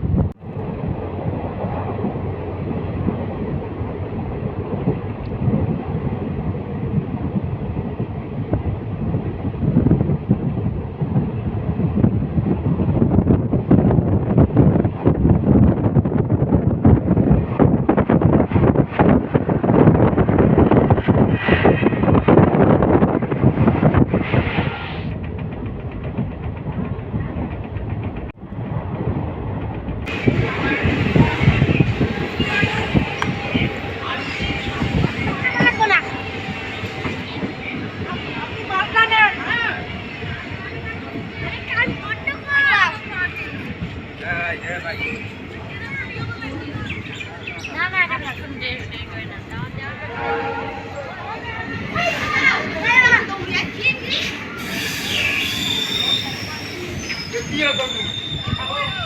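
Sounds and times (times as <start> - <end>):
train wheels rumbling on track: 0.0 - 59.0
wind on microphone: 0.0 - 59.0.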